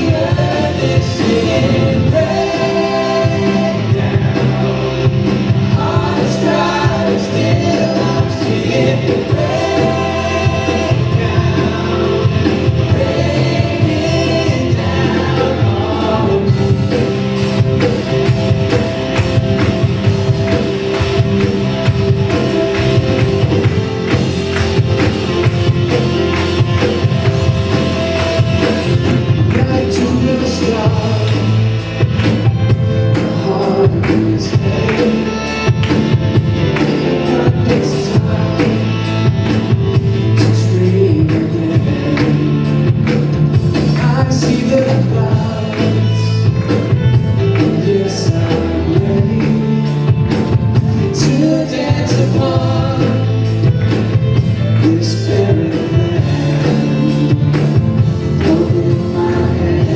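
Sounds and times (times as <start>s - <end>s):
person singing: 0.0s - 17.1s, 27.0s - 31.8s, 33.1s - 43.0s, 43.8s - 46.6s, 47.4s - 50.2s, 50.8s - 53.6s, 54.7s - 59.9s
drum kit: 0.0s - 59.9s
rock worship band playing: 0.0s - 59.9s.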